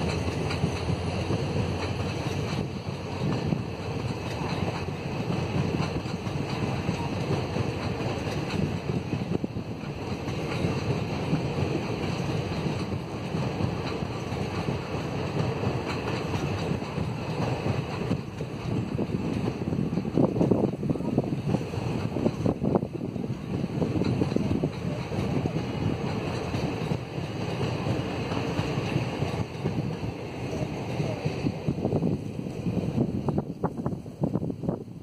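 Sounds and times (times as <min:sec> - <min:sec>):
train wheels rumbling on rail: 0:00.0 - 0:35.0
wind buffeting microphone: 0:00.0 - 0:35.0.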